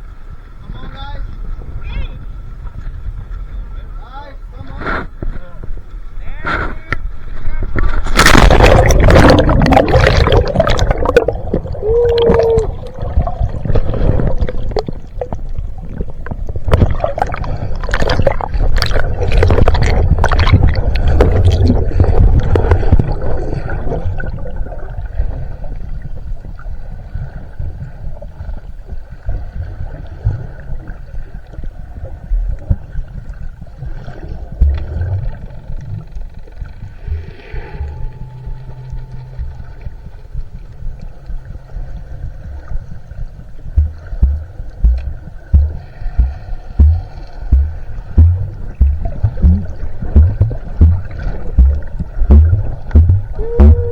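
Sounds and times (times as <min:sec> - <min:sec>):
water splashing and bubbling: 0:07.8 - 0:53.9
faint hum: 0:34.4 - 0:53.9.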